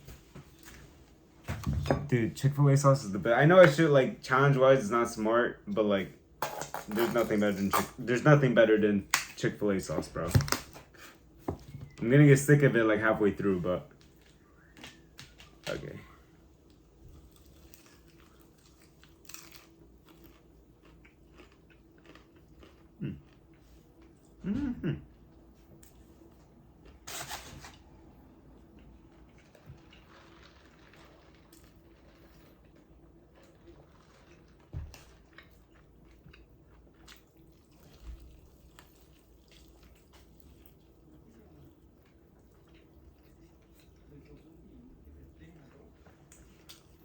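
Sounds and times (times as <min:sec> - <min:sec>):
person chewing food: 0:16.7 - 0:27.1, 0:28.6 - 0:44.5.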